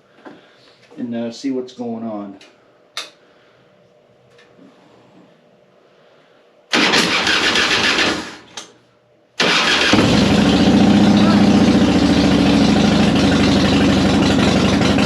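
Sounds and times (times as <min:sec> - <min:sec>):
electric starter cranking: 0:06.7 - 0:08.6, 0:09.4 - 0:11.1
motorcycle engine running: 0:09.5 - 0:15.0.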